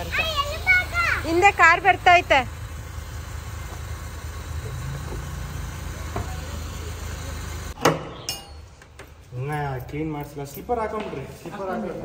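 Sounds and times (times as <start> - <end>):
car engine running: 0.0 - 7.8.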